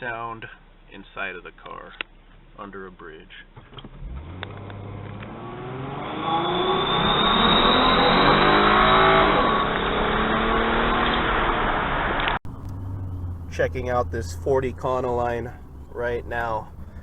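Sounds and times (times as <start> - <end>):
car engine accelerating: 3.8 - 17.0
high turbo whistle: 5.8 - 10.5.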